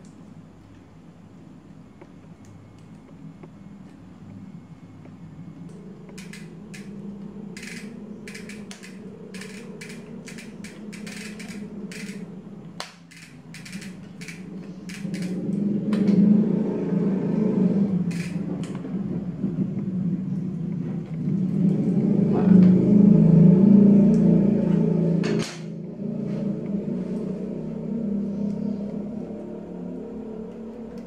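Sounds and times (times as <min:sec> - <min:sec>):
steady low hum: 0:00.0 - 0:31.0
bicycle chain clicks and rattles: 0:06.1 - 0:07.0, 0:07.6 - 0:12.3, 0:12.9 - 0:15.6, 0:18.1 - 0:18.8.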